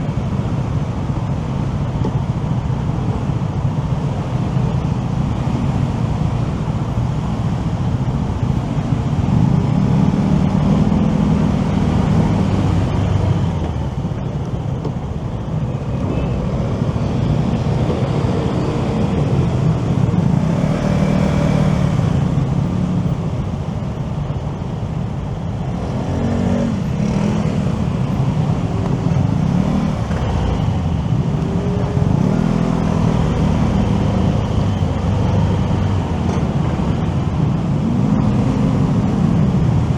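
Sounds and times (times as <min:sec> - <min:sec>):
traffic noise: 0:00.0 - 0:39.9
motorcycle engine: 0:25.6 - 0:39.9.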